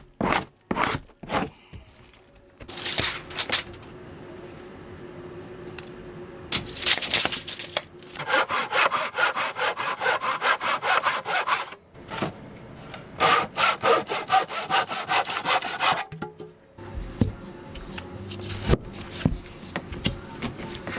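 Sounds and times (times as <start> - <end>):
hand saw cutting wood: 8.2 - 11.8, 13.2 - 16.1.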